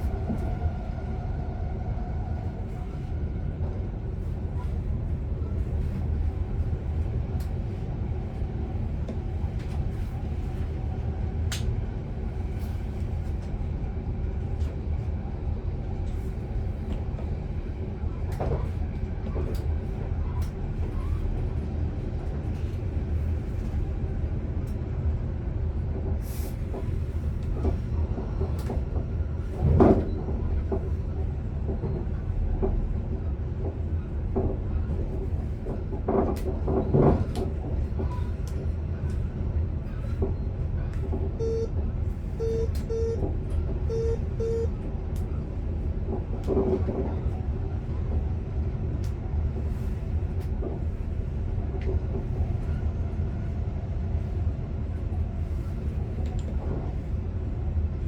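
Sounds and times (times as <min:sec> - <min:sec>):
electric train rolling rumble: 0:00.0 - 0:58.0
train motor tones: 0:42.3 - 0:44.8.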